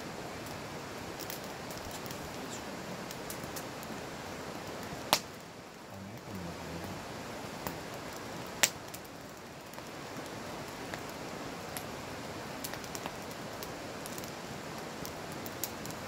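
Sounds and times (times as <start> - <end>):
campfire crackling and hissing: 0.0 - 16.0.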